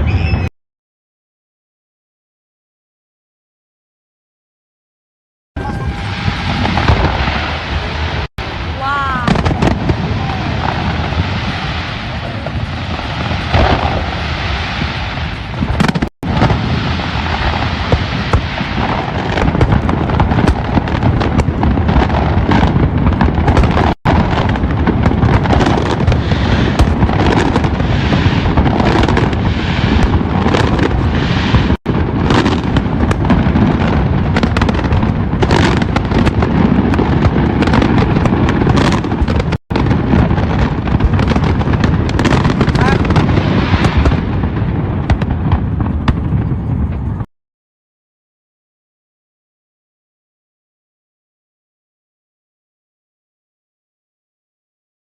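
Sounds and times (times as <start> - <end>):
fireworks bursts and crackles: 5.6 - 47.3.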